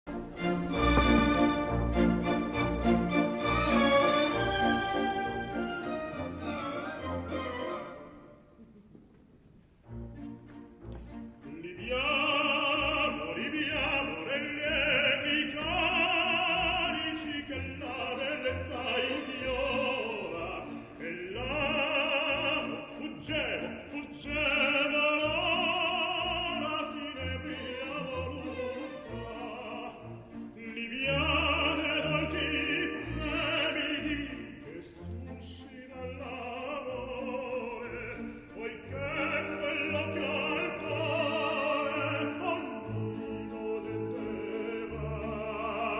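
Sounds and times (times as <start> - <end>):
operatic singing with vibrato: 0.1 - 8.4, 11.3 - 45.9
orchestral accompaniment: 0.1 - 9.0, 9.7 - 45.9.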